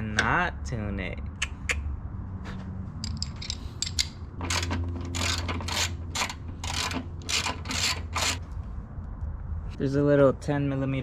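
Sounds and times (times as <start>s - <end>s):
ratchet wrench rasping: 3.1s - 8.4s.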